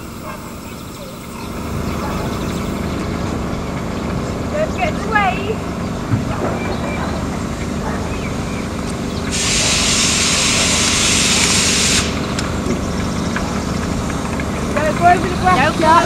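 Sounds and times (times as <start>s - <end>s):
engines rumbling: 0.0s - 16.0s
steam hissing: 9.0s - 12.6s.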